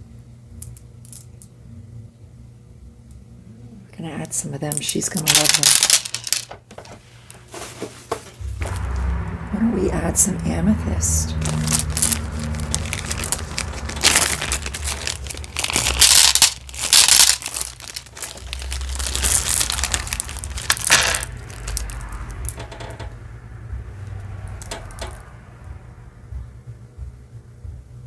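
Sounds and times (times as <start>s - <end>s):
plastic packaging crinkling: 4.9s - 6.6s, 11.4s - 23.1s.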